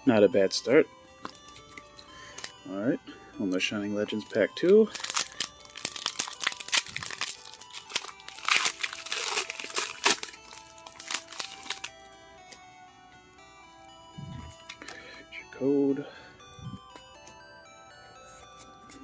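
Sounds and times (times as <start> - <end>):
quiet background music: 0.0 - 19.0
foil wrapper crinkling: 4.3 - 12.0.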